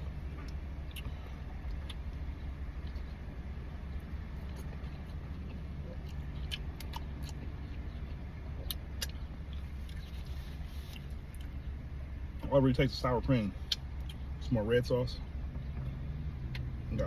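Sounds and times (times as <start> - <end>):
car engine idling: 0.0 - 17.0
small handling noises: 9.5 - 11.6.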